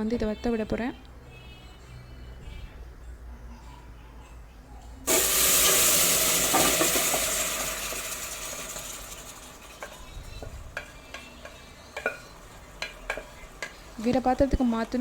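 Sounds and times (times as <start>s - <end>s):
meat sizzling in a pan: 5.1s - 14.0s
spoon scraping and tapping pan: 8.7s - 14.3s.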